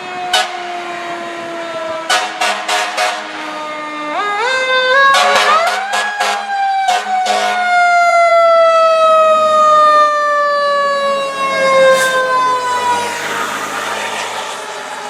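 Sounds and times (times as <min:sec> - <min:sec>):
fire engine siren winding down: 0:00.0 - 0:15.0.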